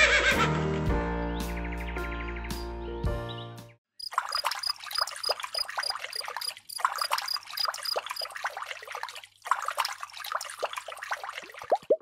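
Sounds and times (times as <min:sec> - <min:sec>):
water splashing into plastic basin: 0:04.0 - 0:12.0.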